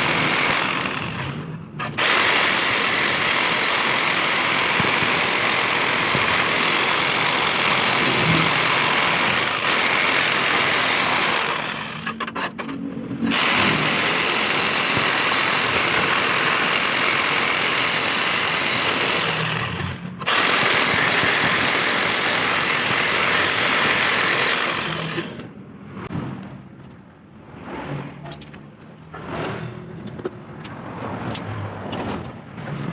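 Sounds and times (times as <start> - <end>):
jigsaw cutting metal: 0.0 - 12.5, 13.3 - 25.5.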